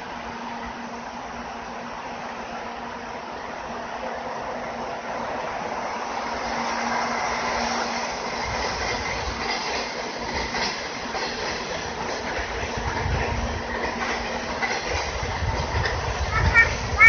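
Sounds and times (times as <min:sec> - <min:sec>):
freight train rumbling past: 0:00.0 - 0:17.0
wheels clacking over rail joints: 0:06.1 - 0:17.0.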